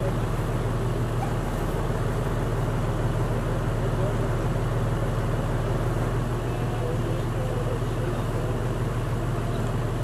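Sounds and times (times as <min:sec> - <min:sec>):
vehicle engine idling: 0:00.0 - 0:10.0
faint voices: 0:06.3 - 0:09.9.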